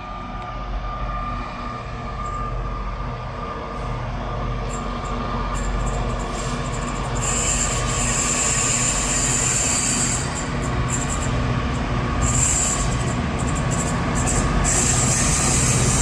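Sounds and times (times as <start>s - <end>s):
train motors humming: 0.0s - 16.0s
train wheel squeal: 4.7s - 16.0s.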